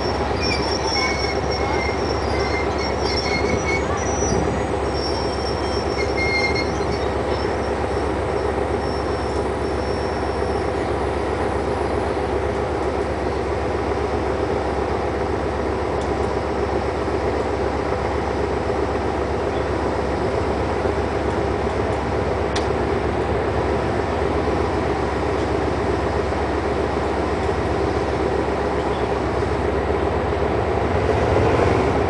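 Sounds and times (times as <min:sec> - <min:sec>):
high-pitched wheel squeals: 0:00.0 - 0:07.8
train wheels rolling on rails: 0:00.0 - 0:32.0.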